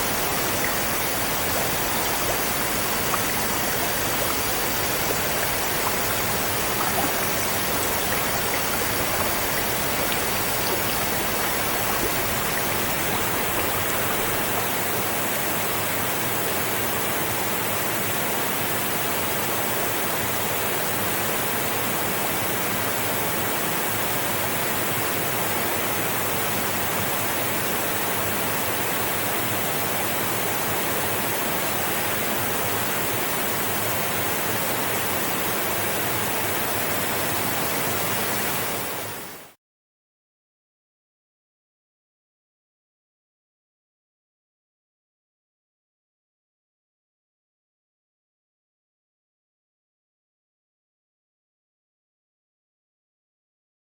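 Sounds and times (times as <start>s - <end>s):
river water rushing: 0.0s - 14.8s.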